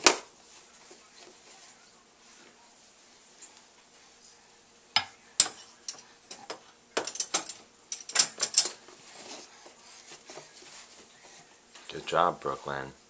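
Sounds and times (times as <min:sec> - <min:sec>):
dishes and cutlery clinking: 0:05.0 - 0:11.0.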